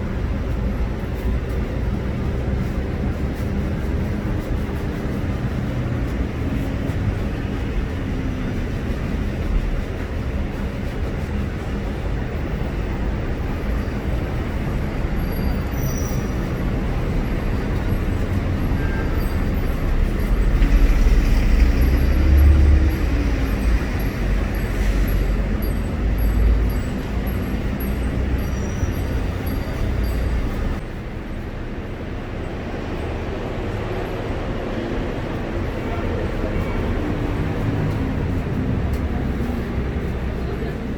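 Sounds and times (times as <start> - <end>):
low rumble of traffic: 0.0 - 40.9
heavy vehicle passing: 16.3 - 30.8.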